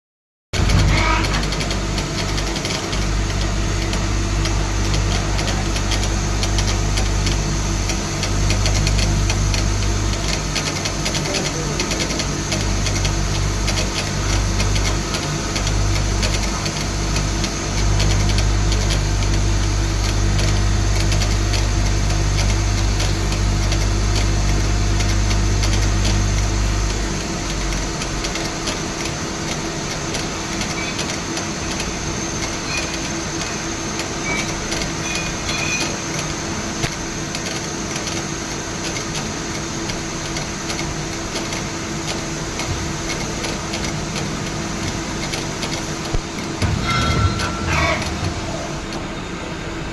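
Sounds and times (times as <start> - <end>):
low machine hum: 0.6 - 49.9.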